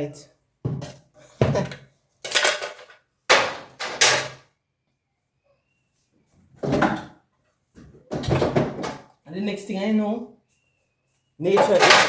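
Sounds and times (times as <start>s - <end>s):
kitchen items clattering: 0.7s - 4.4s, 11.5s - 12.0s.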